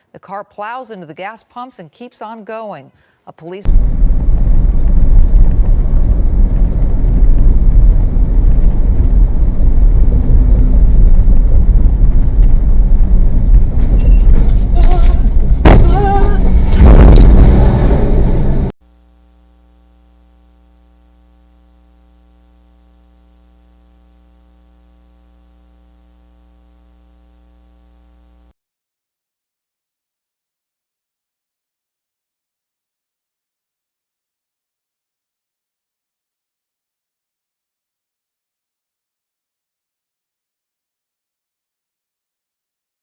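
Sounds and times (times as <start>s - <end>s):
car rumbling in motion: 3.7s - 18.7s
faint steady hum: 18.8s - 28.5s.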